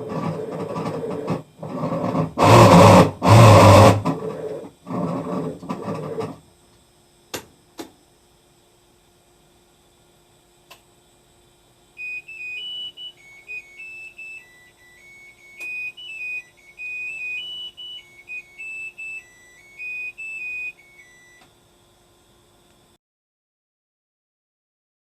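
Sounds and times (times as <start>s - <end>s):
faint steady hum: 0.0s - 23.0s
washing machine buzzer beeping tune: 2.4s - 4.0s, 12.0s - 21.5s.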